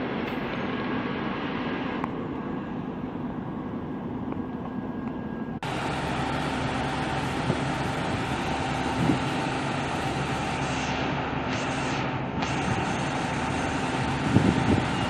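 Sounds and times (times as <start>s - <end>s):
train rumble and hum: 0.0s - 15.0s.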